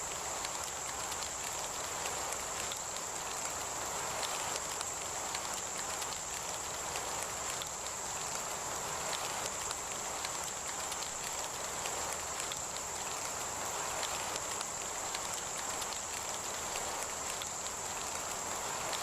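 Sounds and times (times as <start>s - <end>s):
heavy rain falling: 0.0s - 19.0s
raindrops ticking: 0.0s - 19.0s.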